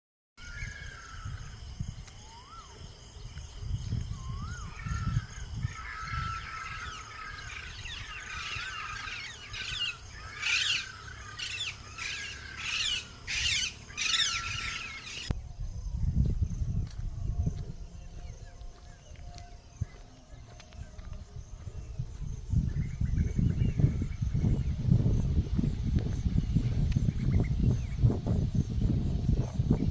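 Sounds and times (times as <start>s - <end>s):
birds chirping and whistling: 0.4s - 16.2s, 17.1s - 29.9s
harsh bird squawking: 5.8s - 15.3s.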